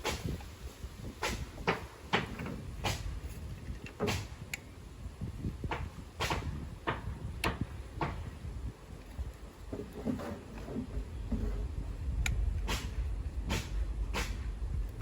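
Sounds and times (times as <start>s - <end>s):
low rumble: 11.0s - 15.0s.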